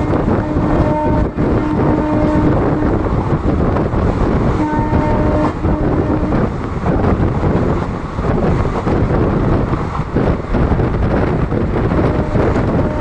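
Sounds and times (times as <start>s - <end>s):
locomotive horn: 0.0s - 3.4s, 4.4s - 6.6s, 12.0s - 13.0s
train rumble and rattle: 0.0s - 13.0s.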